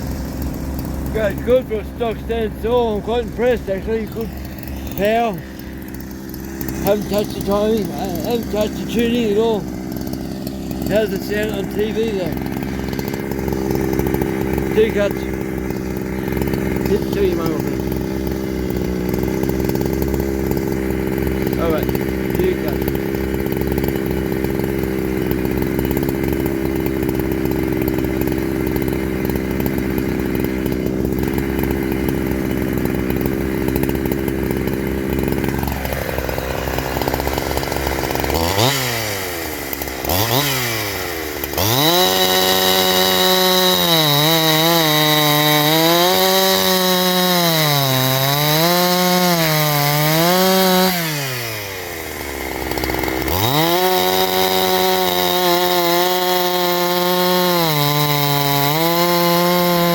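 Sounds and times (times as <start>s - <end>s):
chainsaw cutting and revving: 0.0s - 59.9s.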